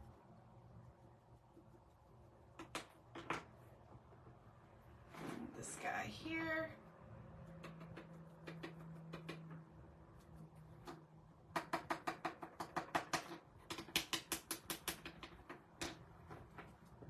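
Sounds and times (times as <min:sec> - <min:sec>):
paint brush dabbing taps: 0:01.4 - 0:04.4, 0:07.4 - 0:17.0.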